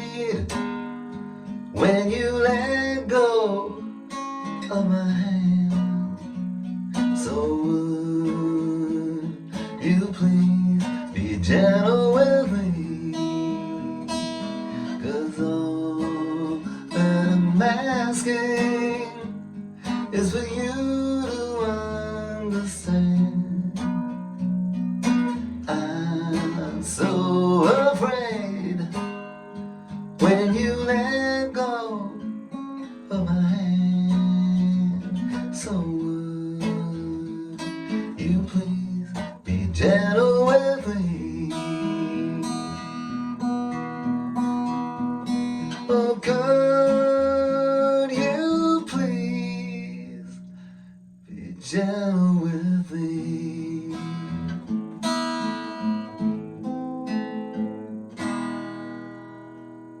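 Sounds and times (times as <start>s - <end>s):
acoustic guitar strummed and picked: 0.0s - 60.0s.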